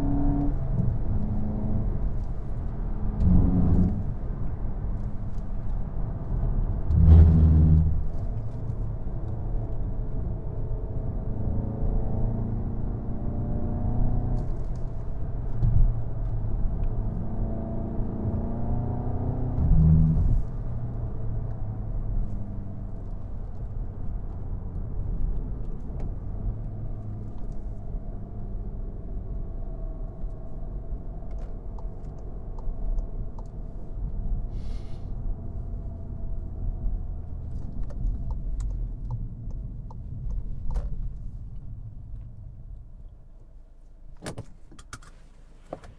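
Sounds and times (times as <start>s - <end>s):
car engine: 0.0s - 45.9s.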